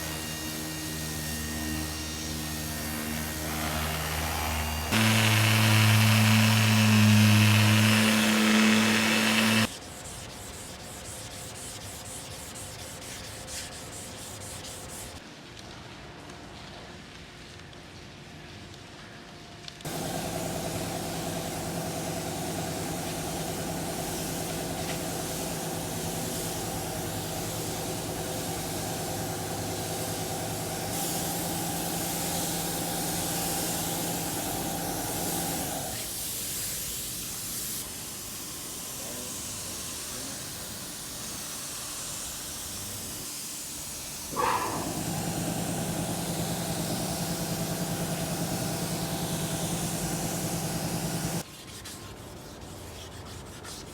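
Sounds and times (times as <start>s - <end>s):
motorised tool humming: 0.0s - 9.7s, 44.3s - 51.4s
air hissing: 3.4s - 9.8s, 19.9s - 51.4s.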